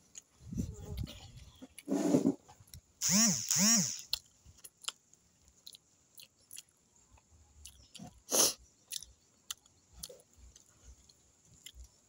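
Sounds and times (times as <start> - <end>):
person chewing: 2.6 - 12.0.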